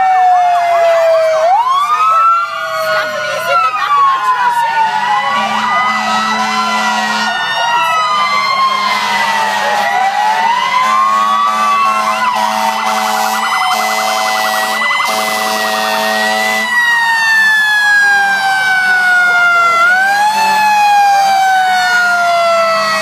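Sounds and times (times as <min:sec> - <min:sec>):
fast yelping siren warble: 0:00.0 - 0:16.1
fire truck sirens wailing: 0:00.0 - 0:23.0.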